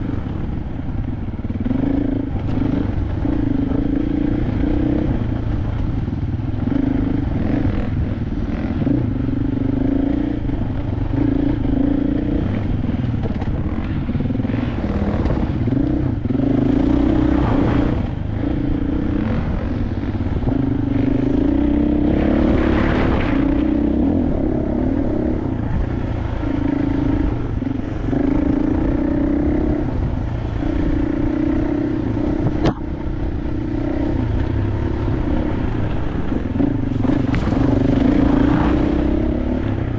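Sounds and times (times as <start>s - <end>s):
dirt bike engine revving: 0.0s - 39.9s
rush of noise: 10.0s - 39.9s.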